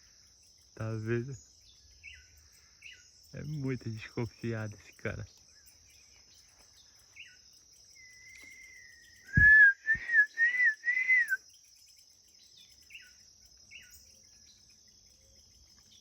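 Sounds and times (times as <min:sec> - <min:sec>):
crickets buzzing: 0:00.0 - 0:16.0
person whistling: 0:09.3 - 0:11.4.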